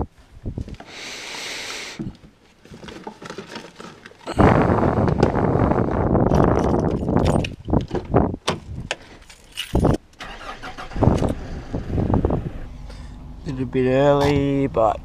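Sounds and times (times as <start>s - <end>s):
knocks and thumps of climbing: 6.2s - 10.0s
car engine idling: 10.2s - 15.0s.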